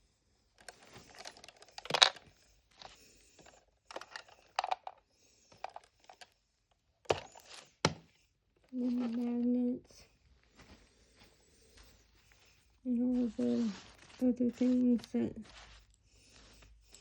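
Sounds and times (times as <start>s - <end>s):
rustling and crinkling: 0.4s - 17.0s
plastic toy pieces clicking: 0.6s - 5.0s.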